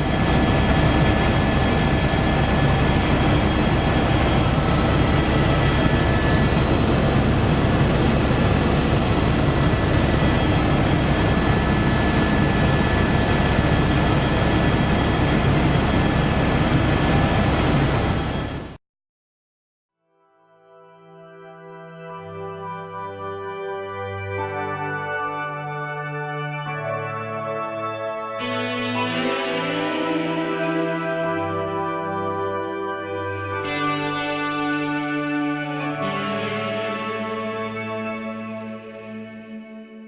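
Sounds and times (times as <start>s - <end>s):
helicopter engine and rotor noise: 0.0s - 18.8s.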